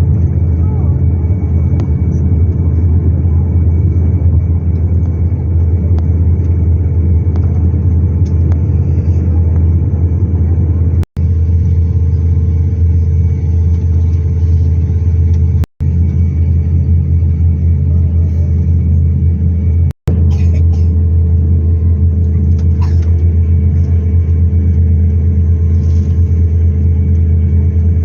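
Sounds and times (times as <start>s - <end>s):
airliner cabin rumble: 0.0s - 28.0s
faint constant hum: 0.0s - 28.0s.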